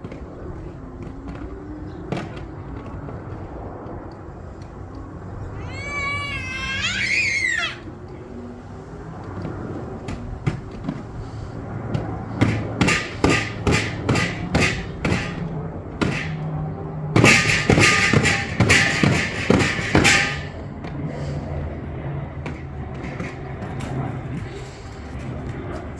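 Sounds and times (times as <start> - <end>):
loud harsh thumps: 11.9 - 21.0
sharp knocks: 11.9 - 21.0.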